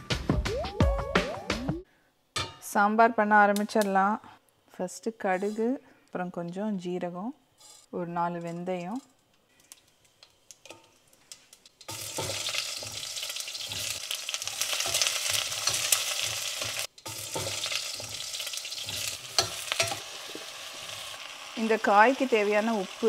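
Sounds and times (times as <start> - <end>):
hot oil sizzling with onions: 10.0 - 23.0.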